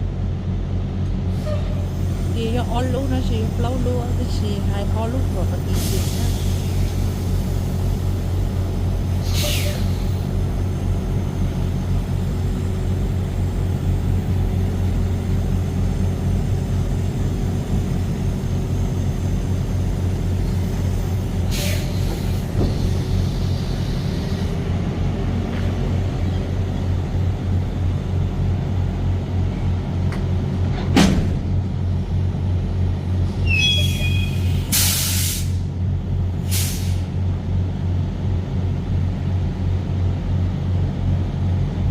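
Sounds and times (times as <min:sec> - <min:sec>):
short hisses: 0:36.5 - 0:37.1.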